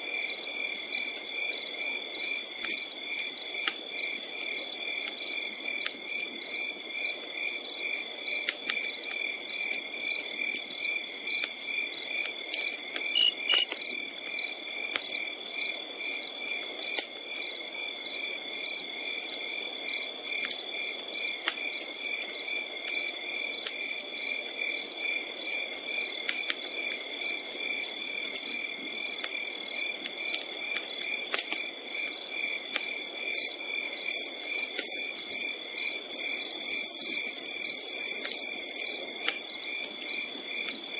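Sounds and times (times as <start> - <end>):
crickets chirping: 0.2 - 4.1, 8.9 - 20.1, 30.9 - 40.9
campfire crackling: 0.6 - 6.9, 7.5 - 18.4, 19.0 - 35.3, 35.9 - 40.9
high insect trill: 13.0 - 13.8, 33.3 - 39.6.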